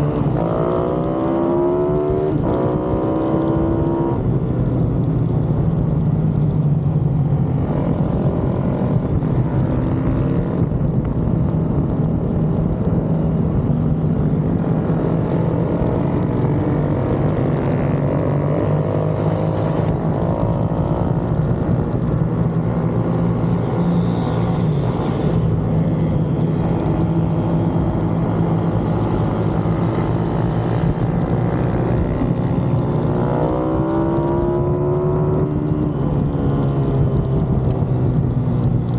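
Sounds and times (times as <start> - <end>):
motorbike engines revving: 0.0 - 4.4, 5.1 - 38.9
steady low drone: 4.2 - 33.3.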